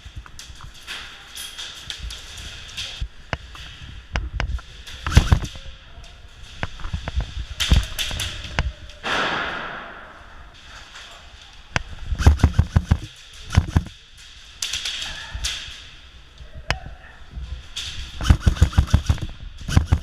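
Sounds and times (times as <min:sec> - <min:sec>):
airsoft guns firing: 0:05.0 - 0:05.5, 0:09.0 - 0:10.2, 0:12.2 - 0:13.9, 0:18.2 - 0:20.0.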